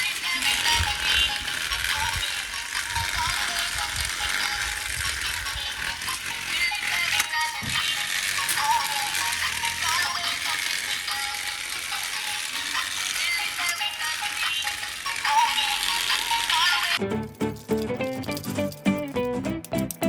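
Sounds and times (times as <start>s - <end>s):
toy plastic gears rattling: 0.0s - 20.0s.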